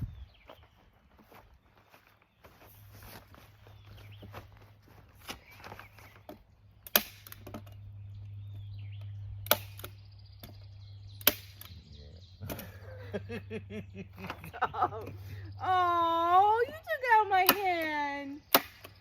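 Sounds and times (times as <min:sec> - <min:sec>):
staple gun snapping: 0:09.4 - 0:10.6.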